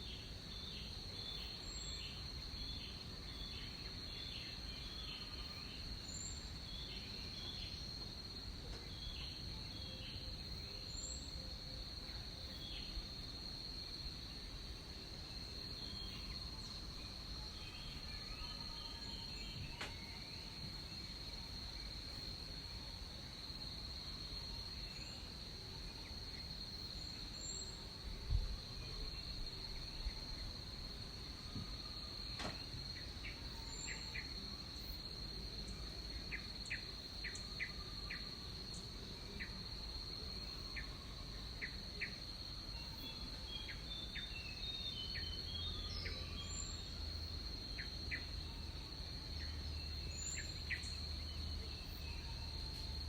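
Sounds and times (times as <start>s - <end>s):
brief thump: 32.4s - 32.6s.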